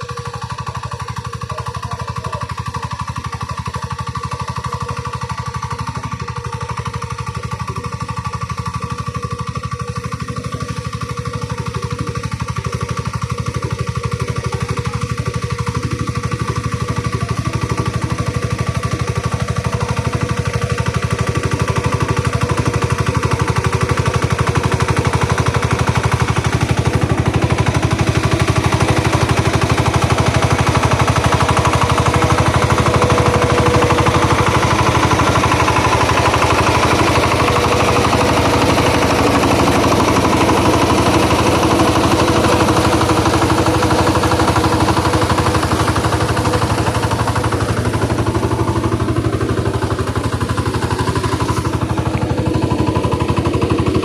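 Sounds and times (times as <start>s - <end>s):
machine engine chugging: 0.0s - 54.0s.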